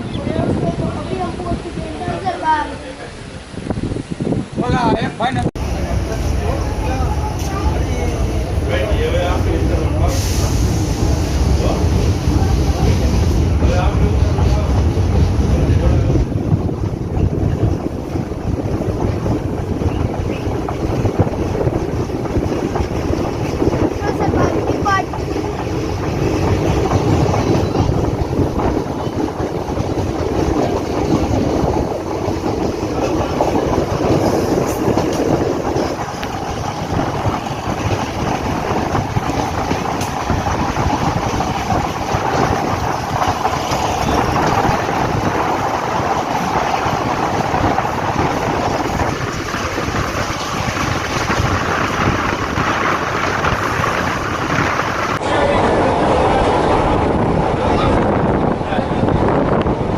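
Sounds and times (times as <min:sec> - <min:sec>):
train wheels rumbling on rails: 0:04.7 - 0:59.9.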